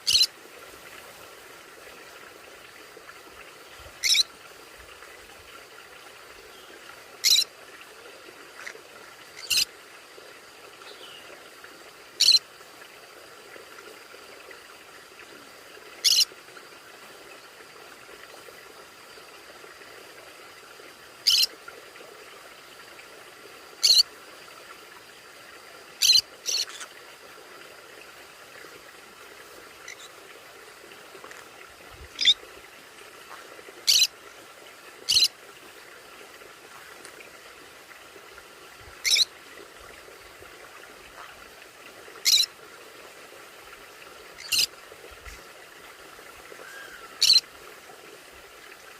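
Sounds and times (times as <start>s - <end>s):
parrot shrill calls: 4.0s - 4.2s, 39.0s - 39.2s, 42.3s - 42.5s, 46.6s - 47.4s.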